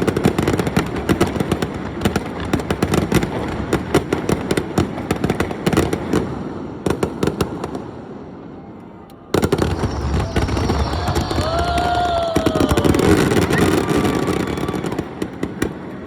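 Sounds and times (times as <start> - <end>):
fireworks bursting and crackling: 0.0 - 8.4, 9.2 - 16.0.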